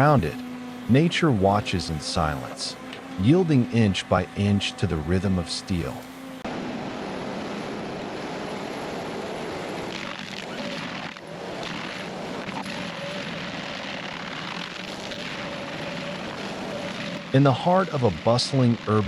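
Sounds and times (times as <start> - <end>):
heavy machine engine running: 0.0 - 19.0.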